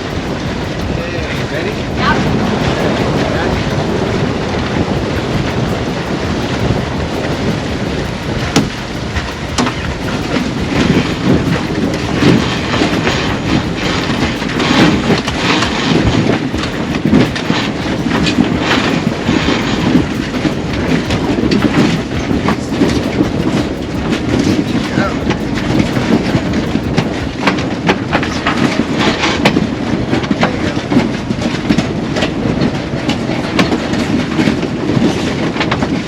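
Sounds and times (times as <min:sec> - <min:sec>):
water rushing past hull: 0:00.0 - 0:36.0
wind buffeting microphone: 0:00.0 - 0:36.0.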